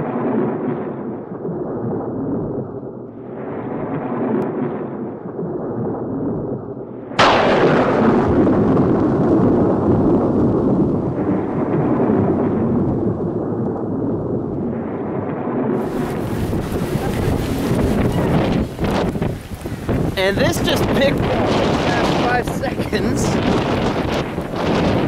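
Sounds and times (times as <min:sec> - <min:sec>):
rolling thunder: 0:00.0 - 0:25.0
heavy rain hissing: 0:15.8 - 0:25.0.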